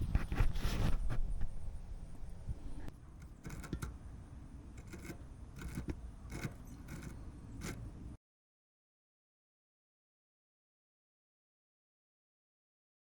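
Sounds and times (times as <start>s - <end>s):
light metallic clinks and scrapes: 2.8s - 8.2s.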